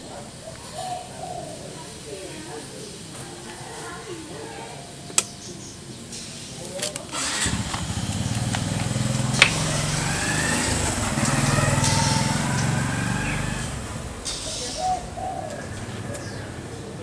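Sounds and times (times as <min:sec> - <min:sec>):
air compressor running: 0:07.1 - 0:14.8.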